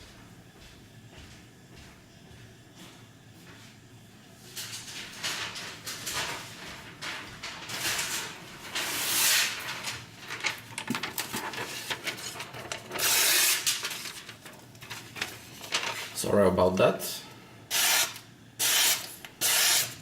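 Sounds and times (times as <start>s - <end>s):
paper rustling and swishing: 4.5s - 16.2s.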